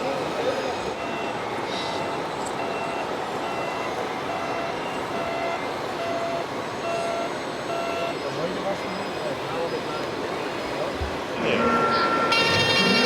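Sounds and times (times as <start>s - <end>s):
background noise din: 0.0s - 13.0s
electronic reversing beeps: 11.4s - 13.0s.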